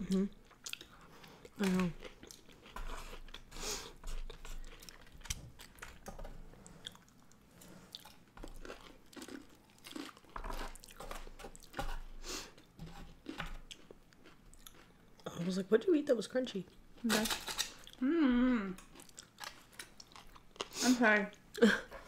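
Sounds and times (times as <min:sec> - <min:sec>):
chewing with mouth clicks: 0:00.1 - 0:06.0, 0:06.6 - 0:11.8, 0:12.5 - 0:15.5, 0:18.8 - 0:20.8.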